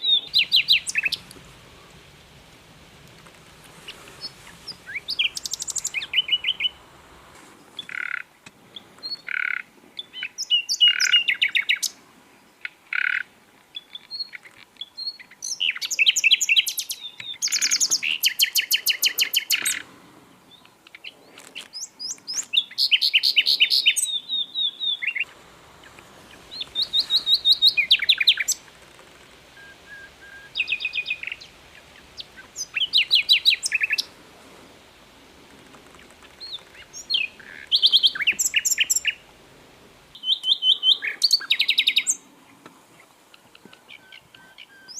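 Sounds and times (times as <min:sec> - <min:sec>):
flycatcher singing trilled phrases: 0:00.0 - 0:01.3, 0:04.0 - 0:06.8, 0:25.9 - 0:28.7, 0:36.2 - 0:39.2.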